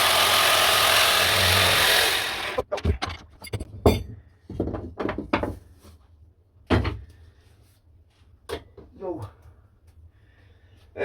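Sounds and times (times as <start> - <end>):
wood and tools knocking on workbench: 2.7 - 5.6.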